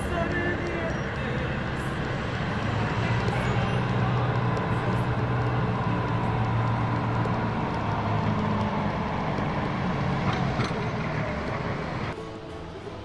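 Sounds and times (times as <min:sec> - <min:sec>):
road noise: 0:00.0 - 0:13.0
vehicle engine drone: 0:00.0 - 0:13.0.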